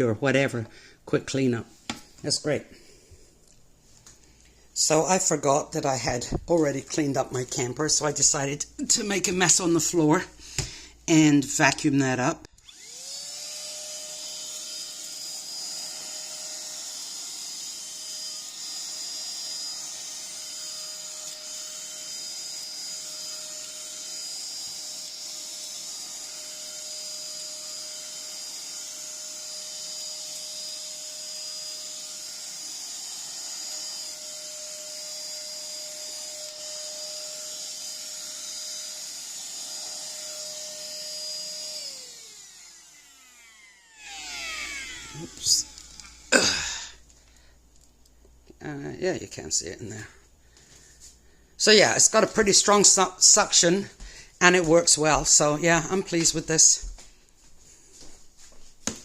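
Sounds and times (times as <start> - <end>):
handheld vacuum motor whining: 11.5 - 48.2, 50.5 - 56.9.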